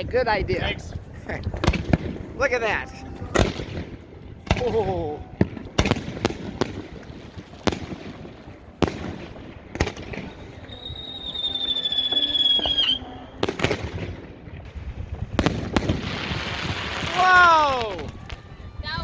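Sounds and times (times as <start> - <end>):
firework crackling: 0.7 - 19.0
fireworks bangs: 1.4 - 19.0
firework whistle: 8.8 - 14.1, 15.8 - 19.0.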